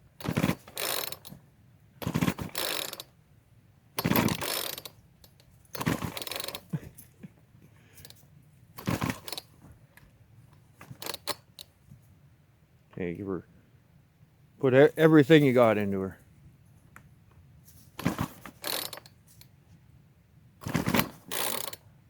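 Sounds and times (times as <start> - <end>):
chainsaw pull starter being pulled: 0.2 - 1.4, 2.0 - 3.1, 4.0 - 7.0, 8.0 - 8.2, 8.8 - 9.6, 10.8 - 11.7, 18.0 - 19.5, 20.6 - 21.9
two-stroke engine turning over: 0.2 - 1.4, 2.0 - 3.1, 4.0 - 5.0, 5.7 - 6.8, 8.8 - 9.5, 18.0 - 19.1, 20.6 - 21.8.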